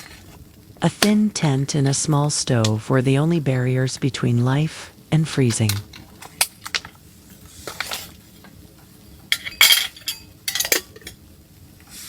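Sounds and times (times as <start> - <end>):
scraping and clinking: 9.3 - 11.2.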